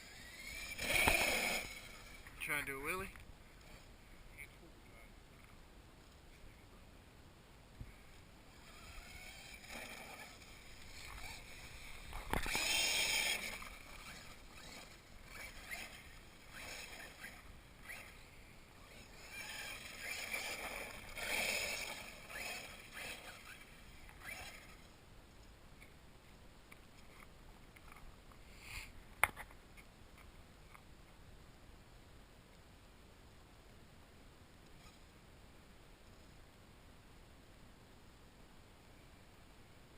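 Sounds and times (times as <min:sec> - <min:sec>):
toy truck motor whine: 0:00.0 - 0:02.3, 0:08.5 - 0:25.0.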